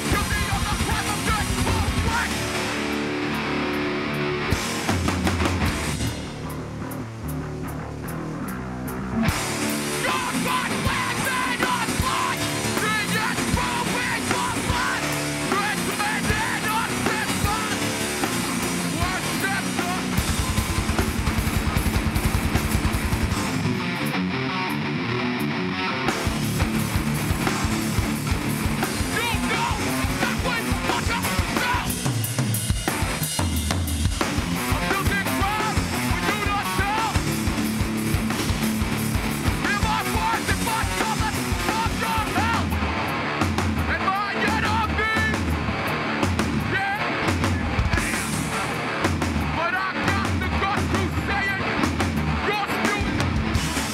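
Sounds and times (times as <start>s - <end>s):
shouted vocals: 0.0s - 2.4s, 9.9s - 18.0s, 29.0s - 32.0s, 34.7s - 37.3s, 39.6s - 42.8s, 46.6s - 48.3s
fast pounding drum beat: 0.0s - 2.8s, 9.3s - 23.7s, 26.2s - 53.9s
distorted guitars: 0.0s - 53.9s
punk band playing live: 0.0s - 53.9s.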